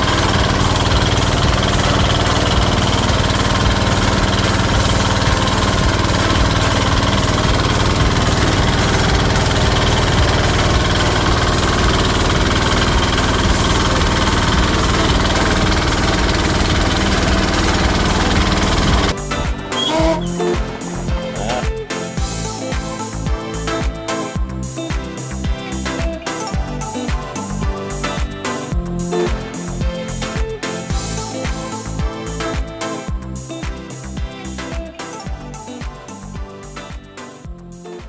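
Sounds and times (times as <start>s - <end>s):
small engine running: 0.0s - 22.6s.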